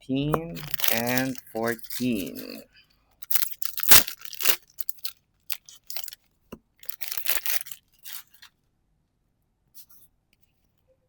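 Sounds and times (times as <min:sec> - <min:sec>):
foil wrapper crinkling: 0:00.6 - 0:02.6, 0:03.2 - 0:06.2, 0:06.8 - 0:08.5.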